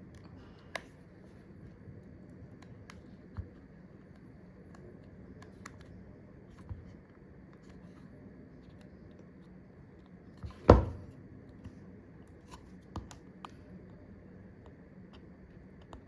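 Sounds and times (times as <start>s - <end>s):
soft thumps: 10.6s - 11.1s.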